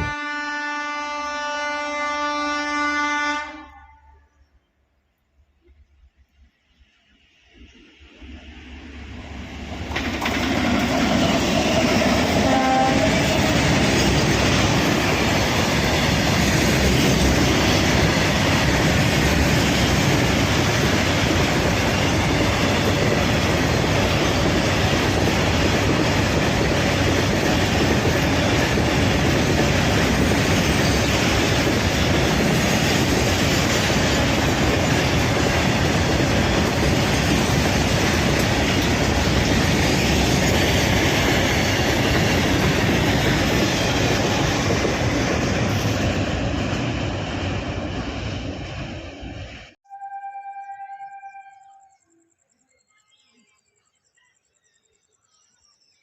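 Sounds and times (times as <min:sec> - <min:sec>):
train rumbling over bridge: 0:00.0 - 0:04.2, 0:05.6 - 0:49.8
train horn: 0:00.0 - 0:04.3, 0:12.2 - 0:13.6, 0:49.8 - 0:52.0.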